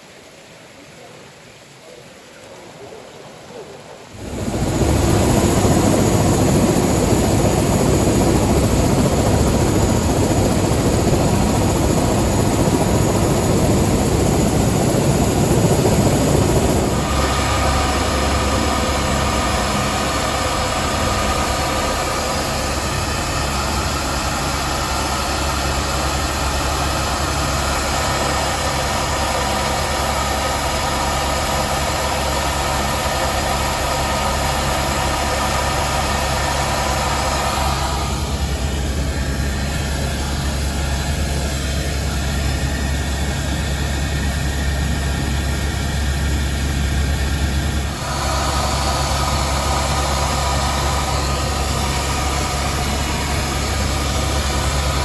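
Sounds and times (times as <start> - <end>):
helicopter engine and rotor drone: 4.1 - 55.0
helicopter roar: 4.1 - 55.0.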